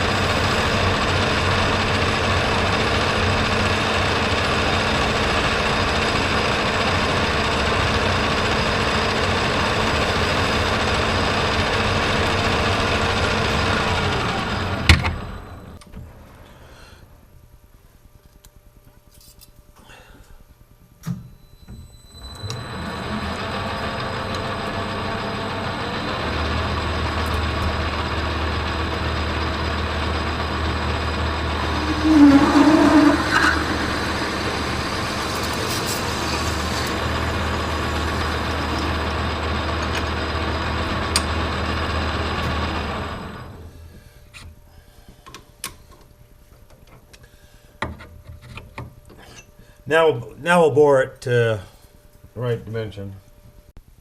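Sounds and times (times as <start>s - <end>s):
metal lathe humming: 0.0s - 14.8s, 22.4s - 43.4s.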